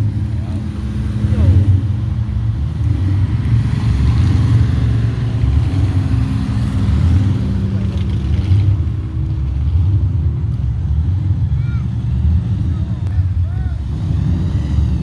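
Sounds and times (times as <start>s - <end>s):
cars driving past: 0.0s - 15.0s.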